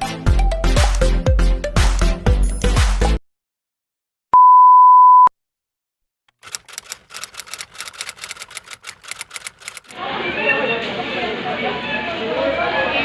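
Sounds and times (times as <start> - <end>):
quick irregular clicks: 6.3 - 10.0.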